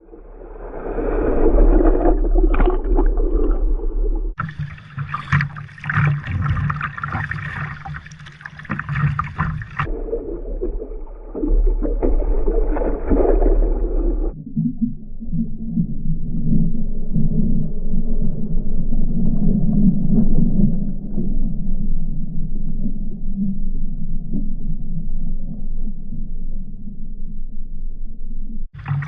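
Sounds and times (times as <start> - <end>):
water splashing around kayak: 0.0 - 15.4, 28.8 - 29.0
short sharp splashes: 4.3 - 14.4, 28.8 - 29.0.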